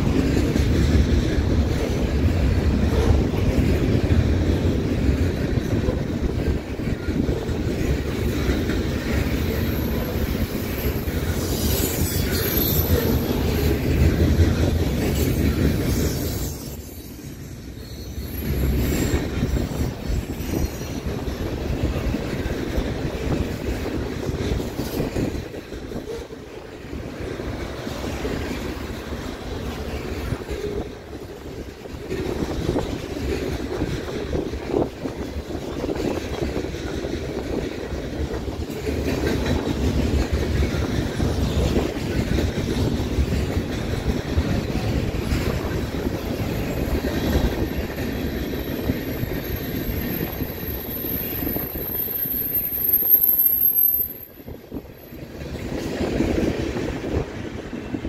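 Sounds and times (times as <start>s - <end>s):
train wheels rumbling on rails: 0.0s - 58.0s
high wheel squeal: 9.4s - 13.8s, 15.2s - 21.1s, 48.4s - 54.4s.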